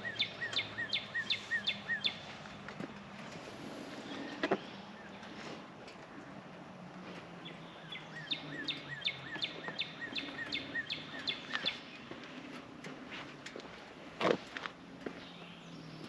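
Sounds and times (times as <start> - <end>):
bird chirping: 0.0 - 2.6, 7.4 - 12.7, 15.0 - 16.0
faint outdoor background noise: 0.0 - 16.0.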